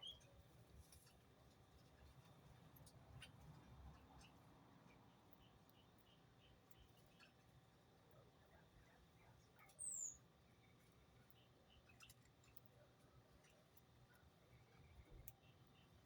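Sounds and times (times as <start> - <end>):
small birds chirping: 9.2 - 12.7.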